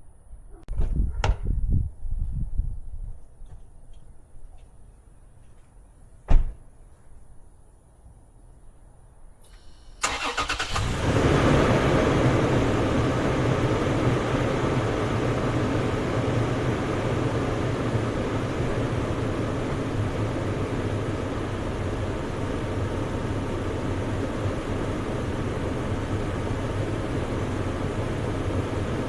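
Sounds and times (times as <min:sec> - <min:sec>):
car engine starter cranking: 0:09.5 - 0:11.3
car engine idling: 0:09.5 - 0:29.0.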